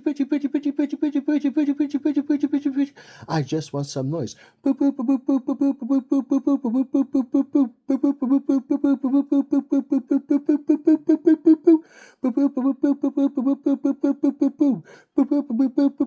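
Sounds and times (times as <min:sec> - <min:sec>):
man rapidly chanting syllables: 0:00.0 - 0:16.0
man breathing in: 0:03.0 - 0:03.3, 0:04.4 - 0:04.6, 0:11.8 - 0:12.2, 0:14.8 - 0:15.2.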